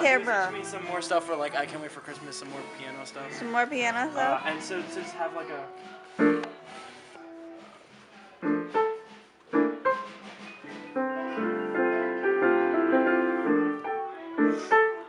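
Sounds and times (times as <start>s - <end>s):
piano notes and chords: 6.0s - 6.7s, 8.4s - 15.0s.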